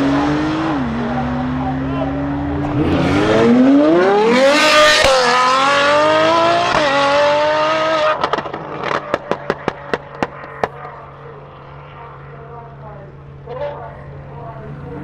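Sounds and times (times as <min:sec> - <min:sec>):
car engine accelerating: 0:00.0 - 0:15.0
exhaust pops: 0:08.2 - 0:11.0.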